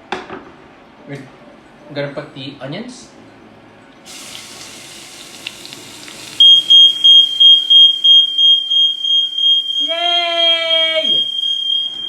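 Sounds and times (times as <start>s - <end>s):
onions sizzling in a frying pan: 4.1s - 7.5s
smoke alarm beeping: 6.2s - 12.0s.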